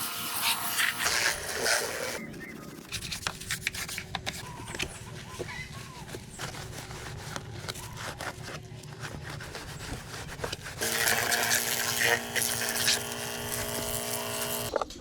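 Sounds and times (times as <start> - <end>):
electric power tool whirring: 0.0 - 2.2, 10.8 - 14.8.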